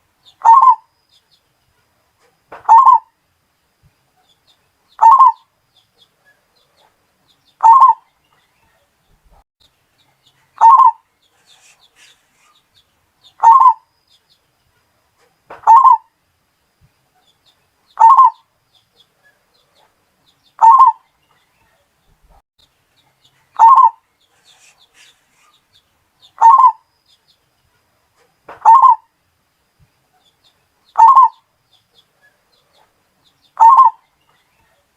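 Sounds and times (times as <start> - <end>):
dove cooing: 0.4 - 0.8, 2.6 - 3.1, 5.0 - 5.4, 7.6 - 8.0, 10.6 - 12.2, 13.4 - 13.9, 15.6 - 16.1, 18.0 - 18.4, 20.6 - 21.0, 23.5 - 25.5, 26.4 - 26.8, 28.6 - 29.1, 31.0 - 31.4, 33.6 - 34.0.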